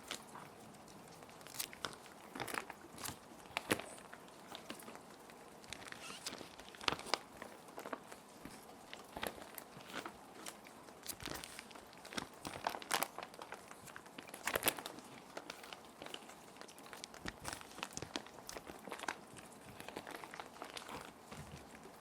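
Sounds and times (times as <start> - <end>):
gentle rain: 0.0 - 22.0
plastic sheet protectors crinkling: 5.6 - 22.0.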